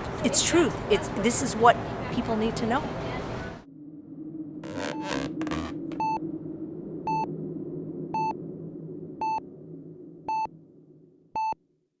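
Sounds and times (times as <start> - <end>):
low background hum: 0.0 - 3.8.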